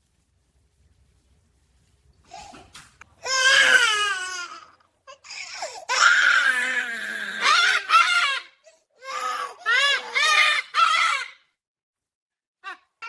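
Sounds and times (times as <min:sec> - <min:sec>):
baby-like crying wails: 0:03.2 - 0:11.4.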